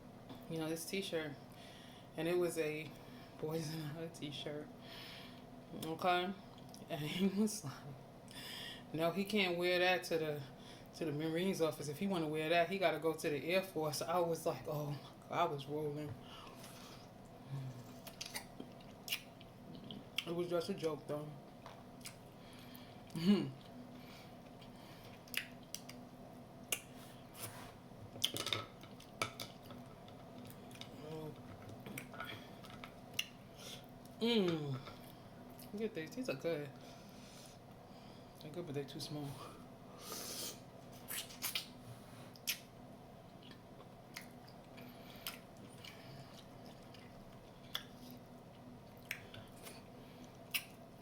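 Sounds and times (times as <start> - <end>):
quiet chewing: 16.5 - 20.3, 21.5 - 26.0, 43.3 - 51.0.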